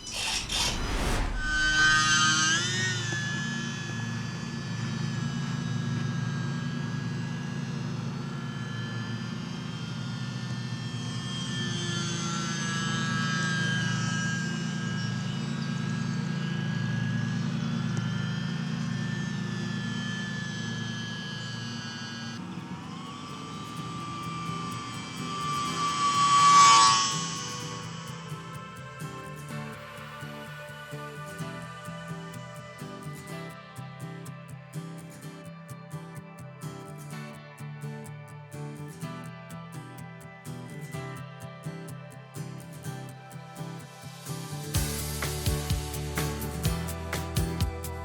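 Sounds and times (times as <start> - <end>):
model airplane motor whine: 0.0 - 33.2.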